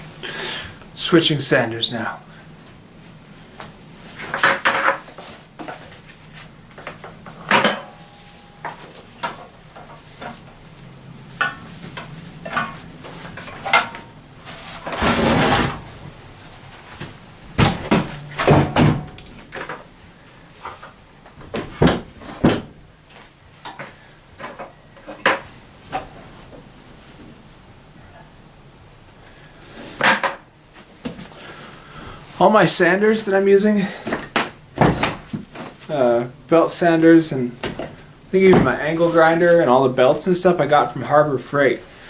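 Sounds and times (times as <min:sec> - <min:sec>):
tools clanking on workbench: 0:17.6 - 0:19.8.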